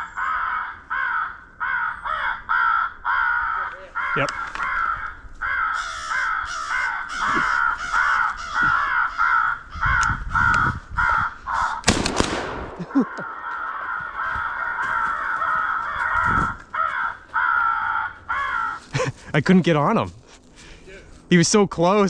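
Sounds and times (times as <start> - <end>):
crows cawing: 0.0 - 19.2
shotgun blast: 11.8 - 13.1.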